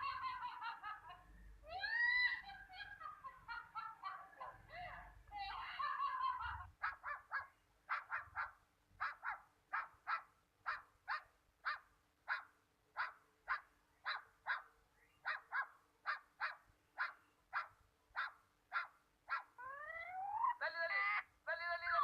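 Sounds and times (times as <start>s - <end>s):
animal barking calls: 5.6s - 20.6s.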